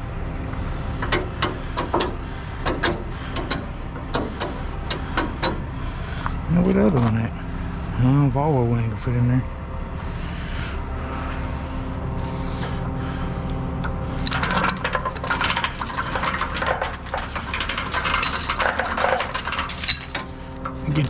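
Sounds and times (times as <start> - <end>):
truck engine idling: 0.0 - 21.0
metal chain clinking and rattling: 14.2 - 20.7.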